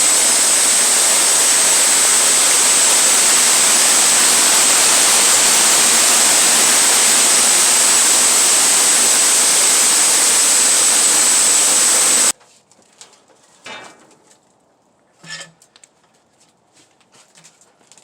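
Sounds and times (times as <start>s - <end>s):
sawmill running with whine: 0.0s - 12.3s
light knocks and clatters: 12.4s - 14.5s.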